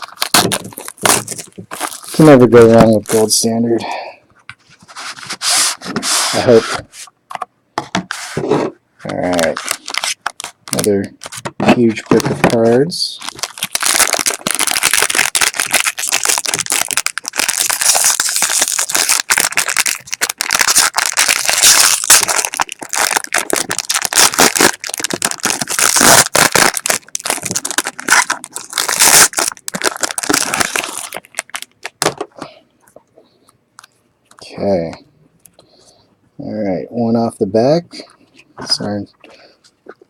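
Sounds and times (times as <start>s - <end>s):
plastic wrapping crinkling and tearing: 0.0s - 3.5s, 9.1s - 32.3s.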